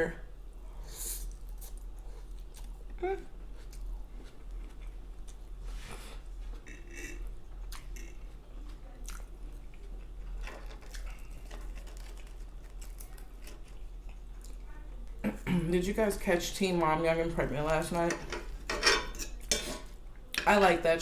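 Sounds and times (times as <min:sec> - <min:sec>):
person chewing food: 0:01.2 - 0:14.7.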